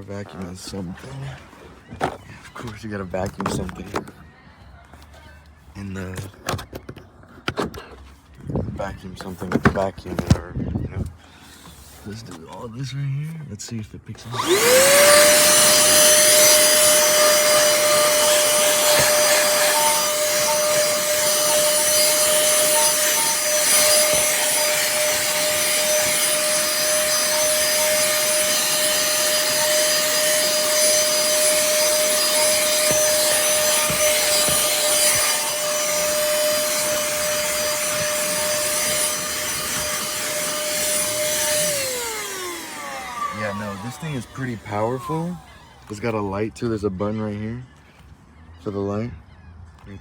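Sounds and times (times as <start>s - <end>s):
handheld vacuum cleaner whine: 14.3s - 46.1s
vacuum nozzle scraping surface: 14.3s - 46.1s.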